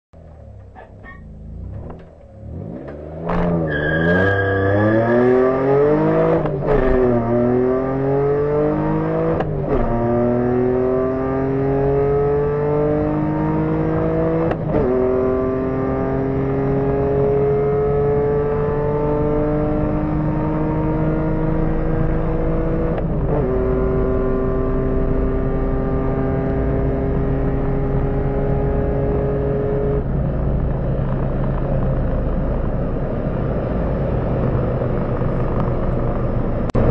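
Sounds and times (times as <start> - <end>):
car engine accelerating hard: 0.3 - 36.9.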